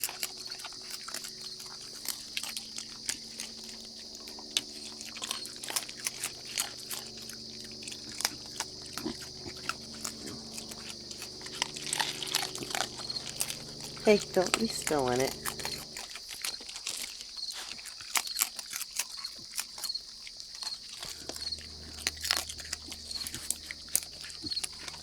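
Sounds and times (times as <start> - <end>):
raccoons crunching food: 0.0 - 25.0
high-pitched drone: 2.0 - 16.1, 20.9 - 25.0.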